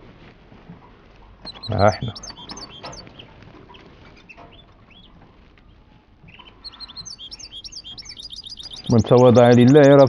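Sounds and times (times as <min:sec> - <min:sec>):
goldfinches chirping: 0:01.4 - 0:05.1, 0:06.3 - 0:10.0.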